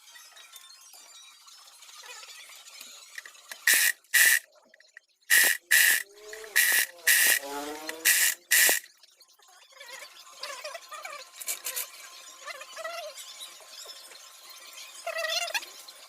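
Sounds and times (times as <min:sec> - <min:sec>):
pressurised air blasts hissing: 0:03.6 - 0:04.4, 0:05.3 - 0:07.4, 0:08.0 - 0:08.8.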